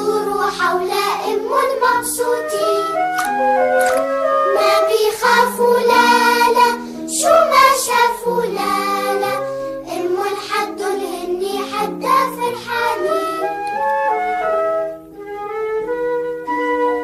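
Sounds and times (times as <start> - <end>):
child singing: 0.0 - 3.3, 4.6 - 13.8
instrumental backing of held notes: 0.0 - 17.0.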